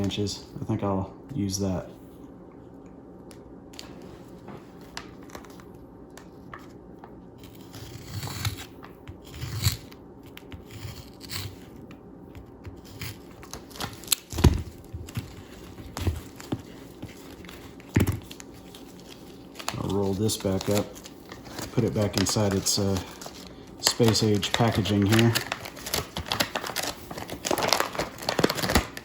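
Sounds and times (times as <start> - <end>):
wrap rustling and tearing: 15.1 - 29.0.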